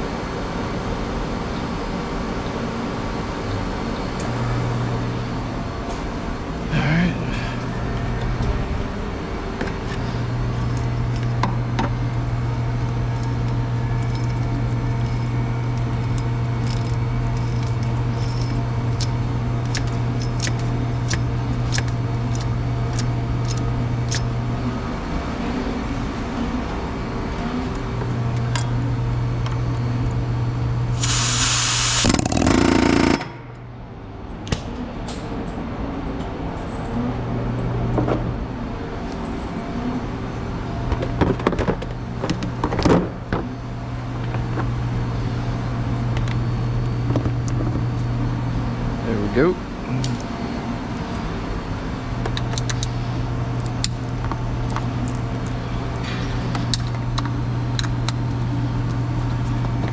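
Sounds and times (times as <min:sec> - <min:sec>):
steady low hum: 0:00.0 - 0:59.9
loud hiss: 0:30.9 - 0:33.2.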